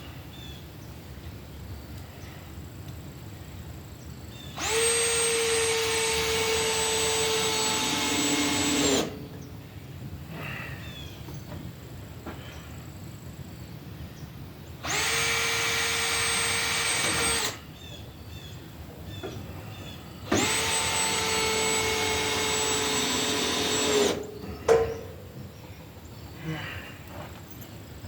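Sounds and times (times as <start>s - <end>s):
power drill whining: 4.6s - 9.2s, 14.8s - 17.6s, 20.2s - 24.3s.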